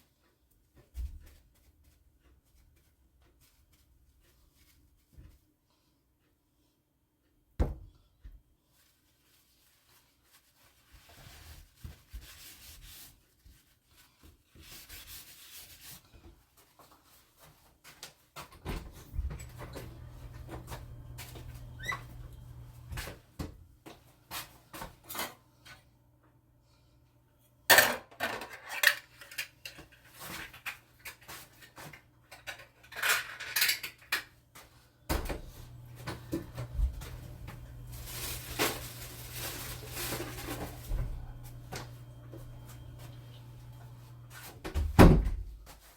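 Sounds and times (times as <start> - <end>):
steady low hum: 35.2 - 44.4.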